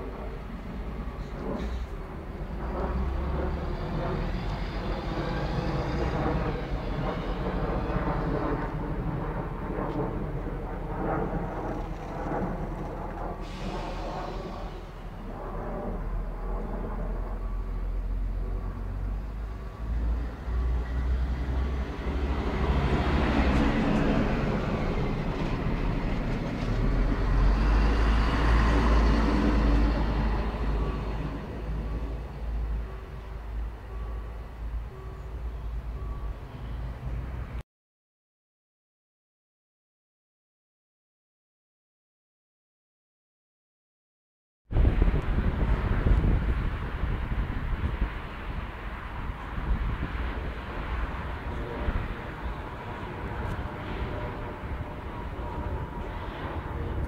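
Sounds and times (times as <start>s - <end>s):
diesel railcar engine: 0.0s - 37.6s, 44.8s - 57.0s
train wheels on rails: 0.1s - 9.1s, 17.8s - 37.5s.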